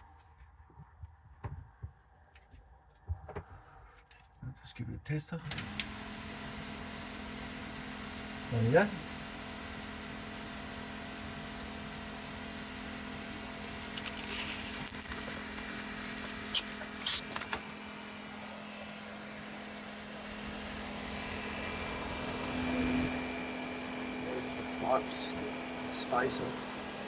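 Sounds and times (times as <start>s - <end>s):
exhaust fan humming: 5.5s - 27.0s.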